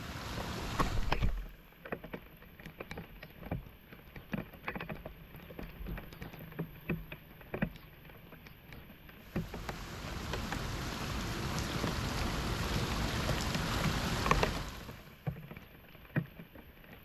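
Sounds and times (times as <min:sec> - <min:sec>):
floodwater splashing and sloshing: 0:00.0 - 0:01.5, 0:09.2 - 0:15.4.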